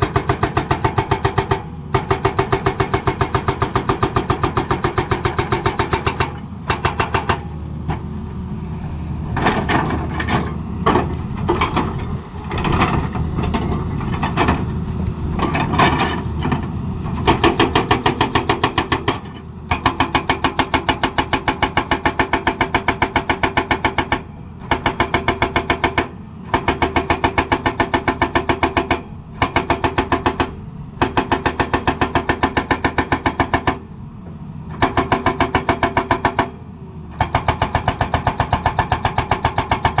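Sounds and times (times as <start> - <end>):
hydraulic rock breaker hammering: 0.0 - 8.1, 15.4 - 33.8, 34.7 - 40.0
diesel engine running: 0.0 - 40.0.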